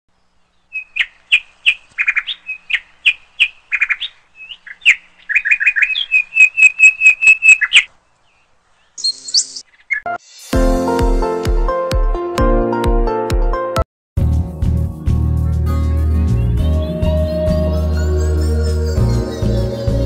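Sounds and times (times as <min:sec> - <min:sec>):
songbird singing: 0:00.1 - 0:10.2, 0:16.2 - 0:20.0.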